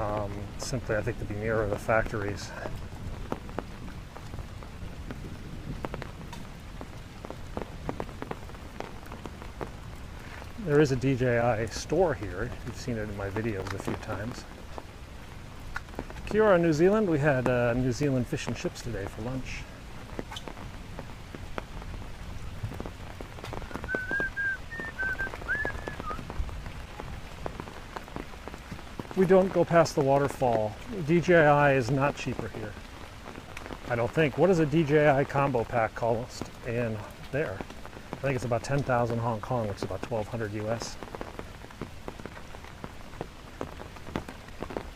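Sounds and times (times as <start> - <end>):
rain falling: 0.0 - 44.9
raindrops ticking close by: 0.0 - 44.9
short whistled notes: 23.7 - 26.2.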